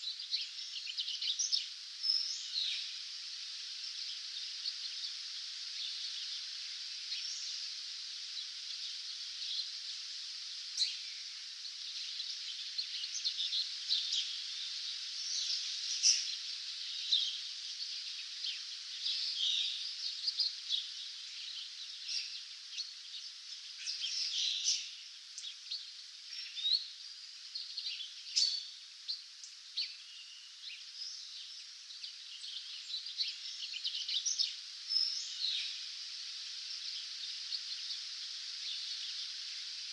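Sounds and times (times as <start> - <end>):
distant birdsong chorus: 0.0 - 39.9.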